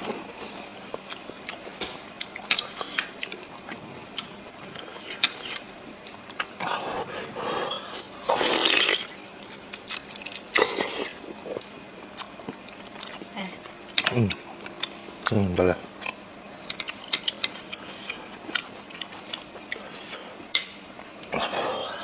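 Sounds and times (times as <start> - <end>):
wet chewing and lip-smacking: 1.0 - 6.7, 8.5 - 15.4, 16.0 - 20.6.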